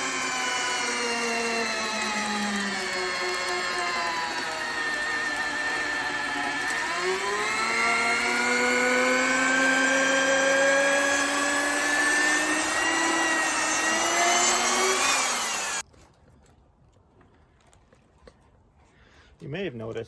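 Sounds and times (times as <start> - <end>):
electric drill boring through wood: 0.0 - 15.8.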